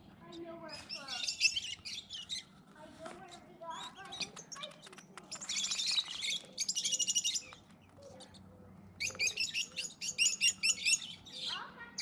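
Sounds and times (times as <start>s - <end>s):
birds chirping: 0.2s - 2.6s, 3.2s - 12.0s.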